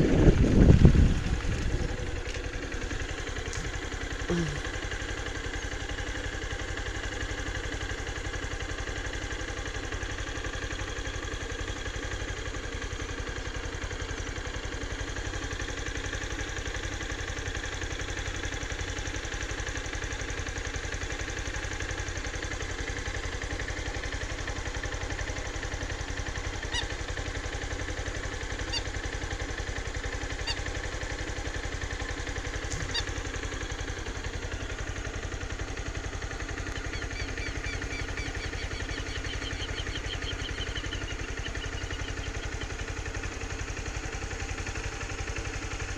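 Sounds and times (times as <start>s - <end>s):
engine idling: 0.0s - 45.9s.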